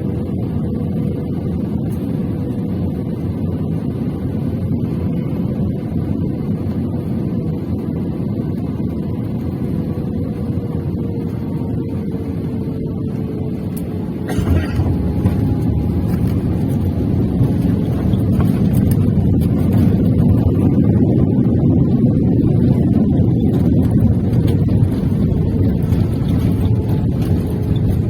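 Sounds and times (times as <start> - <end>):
airliner engines rumbling in cabin: 0.0 - 28.0.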